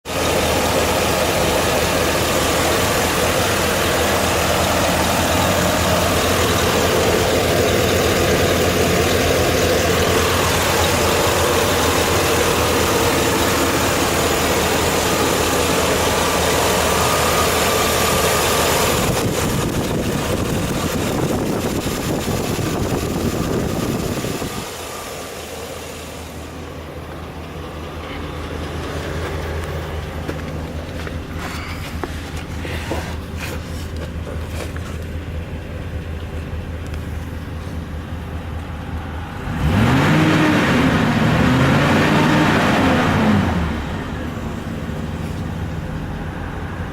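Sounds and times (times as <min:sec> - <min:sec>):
truck engine idling: 0:00.0 - 0:46.9.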